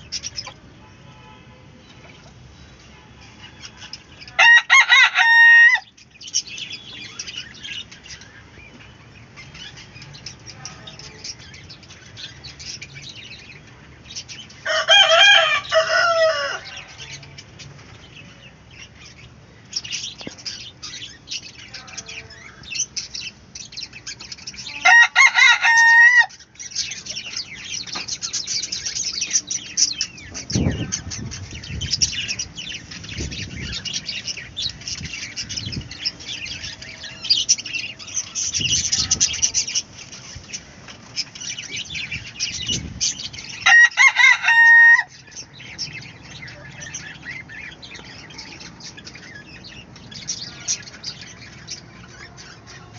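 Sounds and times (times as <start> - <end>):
chickens chirping and clucking: 0.0 - 52.9
rooster crowing: 4.4 - 5.9, 14.6 - 17.2, 24.8 - 26.4, 43.6 - 45.2.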